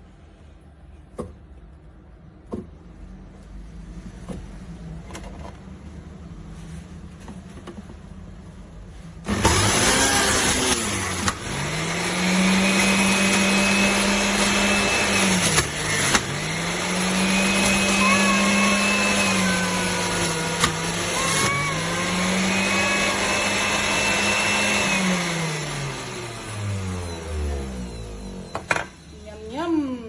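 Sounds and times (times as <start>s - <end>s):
juicer motor whirring: 9.3s - 29.2s.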